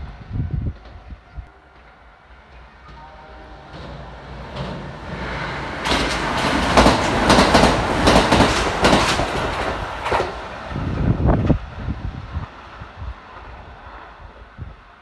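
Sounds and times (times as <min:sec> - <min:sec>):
electric train rushing past: 0:00.0 - 0:15.0
wheels clacking over rail joints: 0:03.6 - 0:10.7.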